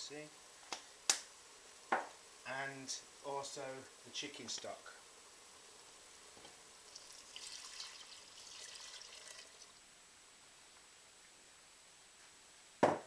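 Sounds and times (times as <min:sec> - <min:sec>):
liquid pouring into a pan: 0:06.9 - 0:09.8.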